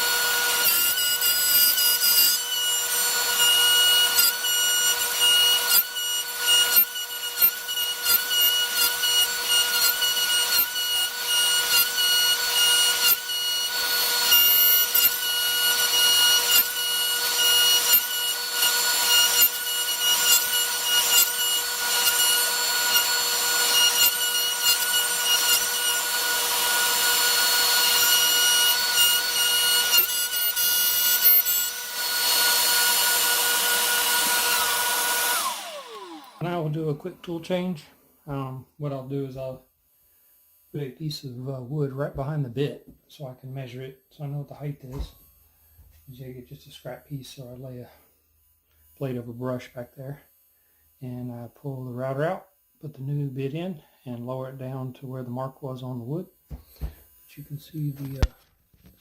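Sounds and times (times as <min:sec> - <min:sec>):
bit cutting wood: 0:00.0 - 0:37.5
router whining: 0:00.0 - 0:37.8.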